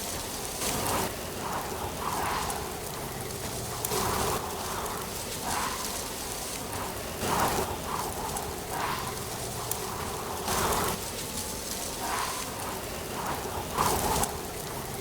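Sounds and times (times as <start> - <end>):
wind gusting through trees: 0.0 - 15.0
dry leaves rustling: 2.1 - 7.6.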